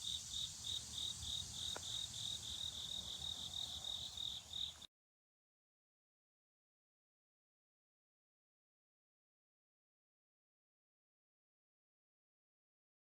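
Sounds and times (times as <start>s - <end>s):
cricket chirping: 0.0s - 4.9s.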